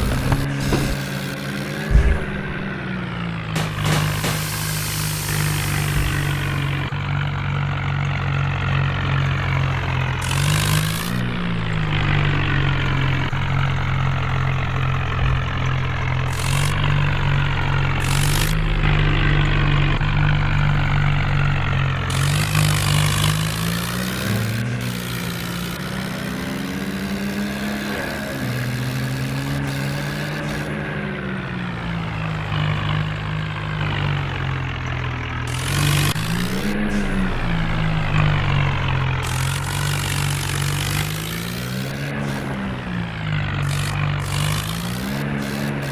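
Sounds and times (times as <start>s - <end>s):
bursts of hiss: 0.0s - 2.8s, 3.6s - 6.9s
tractor diesel engine running: 0.0s - 45.9s.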